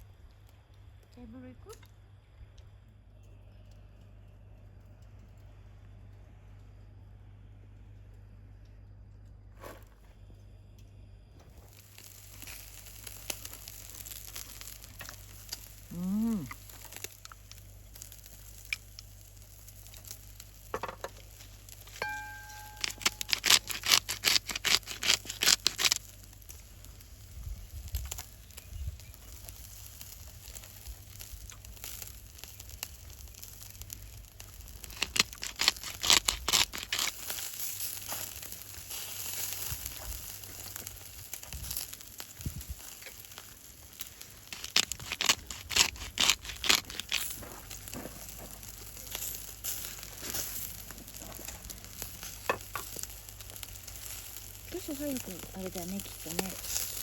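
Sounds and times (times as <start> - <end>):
food sizzling over campfire: 11.5 - 57.0
clear ringing tone: 22.0 - 23.3.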